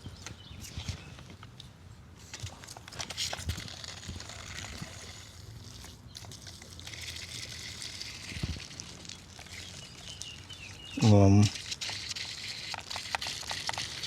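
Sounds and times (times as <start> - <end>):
water running and splashing: 3.9 - 14.0.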